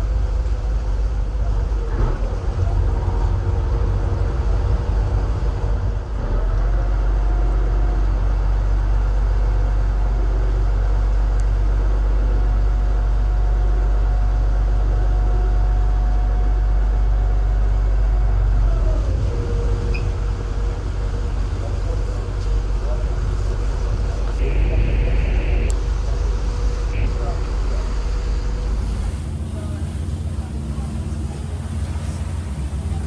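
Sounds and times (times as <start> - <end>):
ferry engine droning: 0.0 - 33.0.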